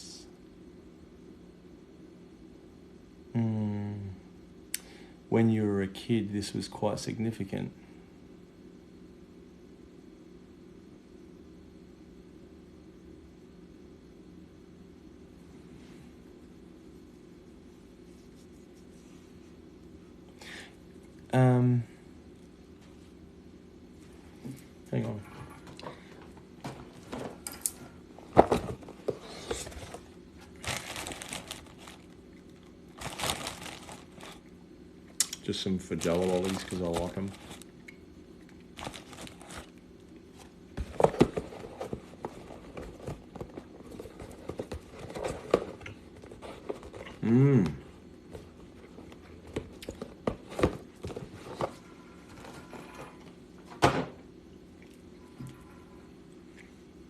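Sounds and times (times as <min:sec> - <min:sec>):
plastic packet crinkling: 0:30.5 - 0:34.4, 0:35.9 - 0:37.7, 0:38.7 - 0:39.8.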